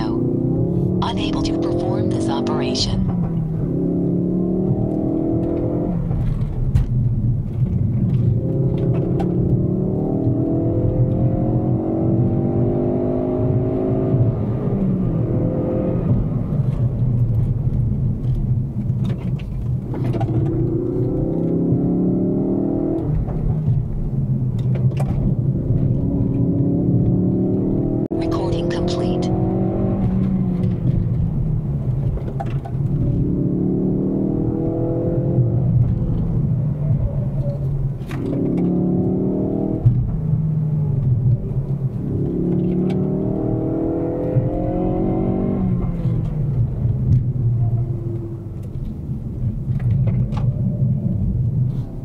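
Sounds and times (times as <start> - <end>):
car engine revving hard: 3.6 - 6.4, 8.4 - 16.6, 20.3 - 23.1, 25.8 - 31.0, 32.9 - 36.2, 38.2 - 40.1, 41.9 - 46.3.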